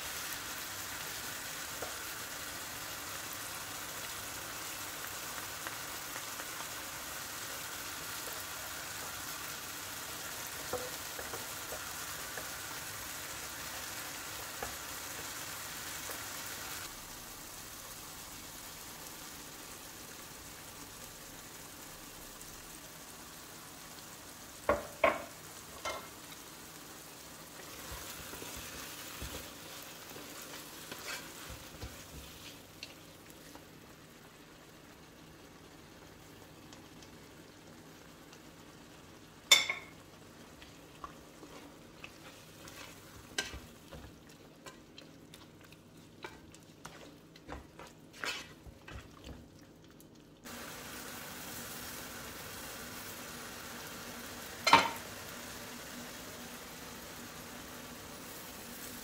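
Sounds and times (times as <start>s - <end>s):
vegetables sizzling in oil: 0.0s - 59.0s
wooden spoon stirring sauce: 27.6s - 33.6s, 40.6s - 50.4s.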